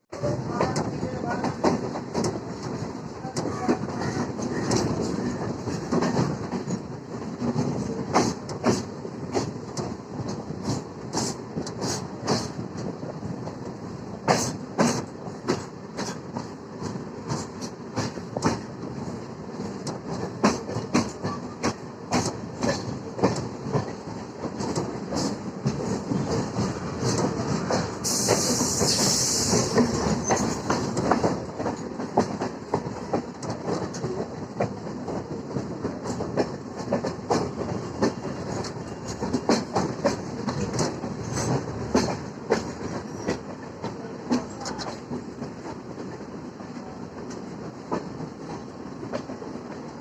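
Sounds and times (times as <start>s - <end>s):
train wheels clattering: 0.5s - 50.0s
loud hiss: 28.0s - 29.8s.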